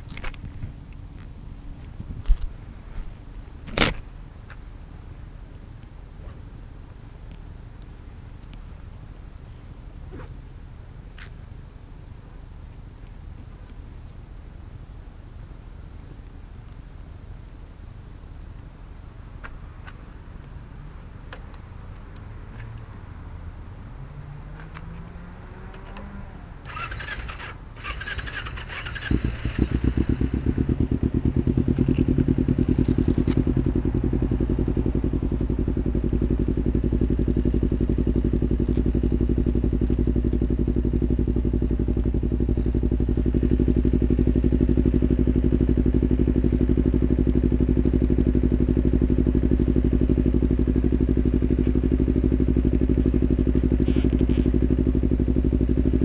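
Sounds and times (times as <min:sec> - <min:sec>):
motorcycle engine starting and idling: 0:16.8 - 0:56.0.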